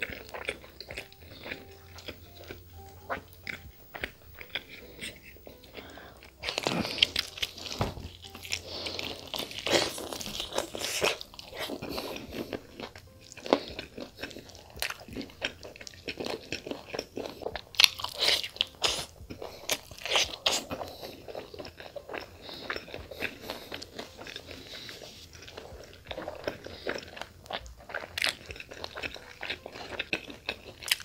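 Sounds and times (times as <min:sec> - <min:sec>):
biting and chewing: 0:00.0 - 0:31.0
wet mouth clicks and crunches: 0:27.5 - 0:31.0.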